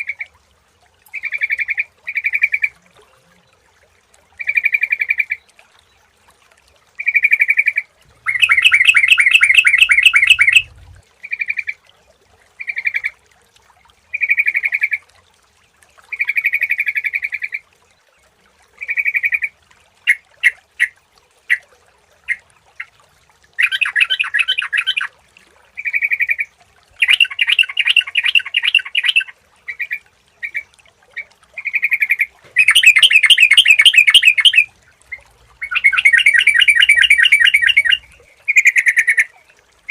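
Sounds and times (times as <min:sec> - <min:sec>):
bulbul calling: 0:07.0 - 0:11.7, 0:23.6 - 0:25.1, 0:25.9 - 0:30.6, 0:31.6 - 0:39.3.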